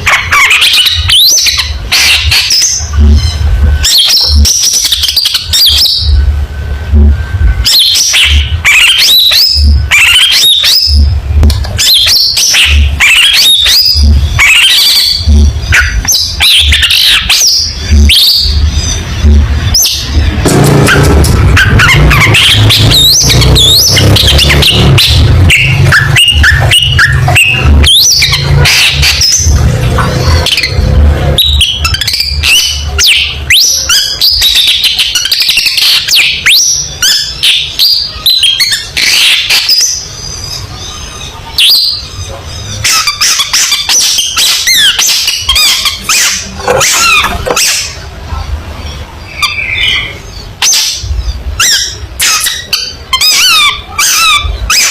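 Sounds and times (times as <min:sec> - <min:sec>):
bird singing chirps and whistles: 0:00.1 - 0:06.2, 0:07.4 - 0:48.0, 0:49.3 - 0:54.9
low hum: 0:01.6 - 0:08.7, 0:13.7 - 0:33.5.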